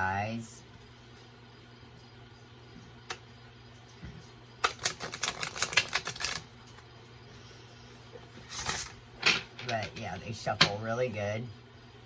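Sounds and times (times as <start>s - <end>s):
cards being riffle shuffled: 4.6s - 6.5s.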